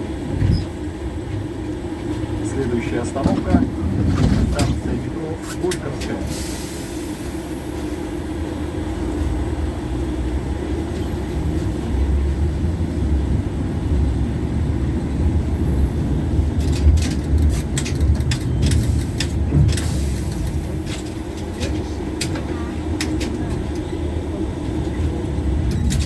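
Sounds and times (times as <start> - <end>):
tram rumbling on rails: 0.0 - 26.0
sharp clicks and knocks: 16.6 - 23.9.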